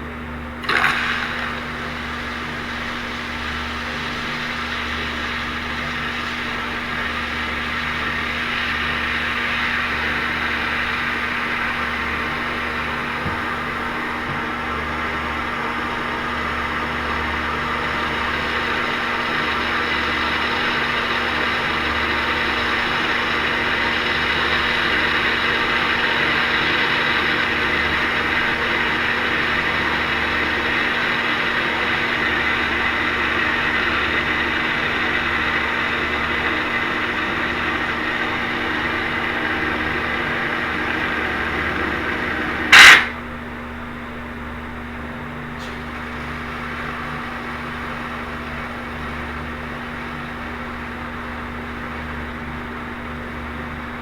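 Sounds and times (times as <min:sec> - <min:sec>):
loud click: 0:42.7 - 0:43.2.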